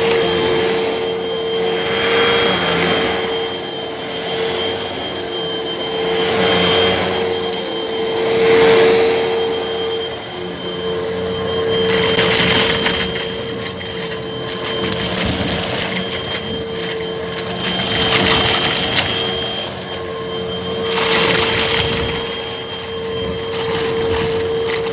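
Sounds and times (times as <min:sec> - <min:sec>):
vacuum cleaner motor whine: 0:00.0 - 0:24.9
debris crackling and rattling: 0:11.6 - 0:24.9.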